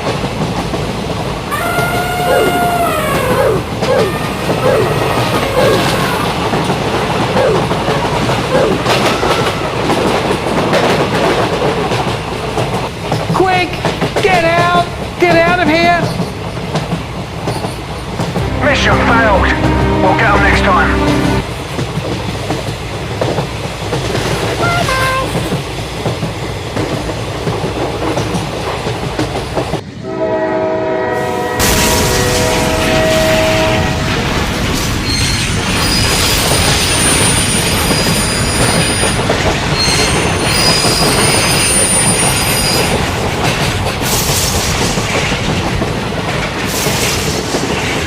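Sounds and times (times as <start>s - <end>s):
train wheels clickety-clack: 0.0s - 18.4s, 21.5s - 30.0s, 31.2s - 48.0s
train horn: 18.4s - 21.5s, 24.6s - 25.4s, 30.0s - 34.2s
two-note train toot: 18.4s - 21.5s, 24.6s - 25.4s.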